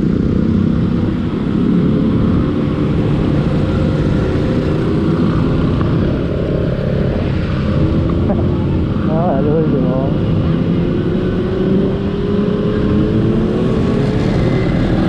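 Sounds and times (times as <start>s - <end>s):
motorcycle engine low rumble: 0.0s - 15.0s.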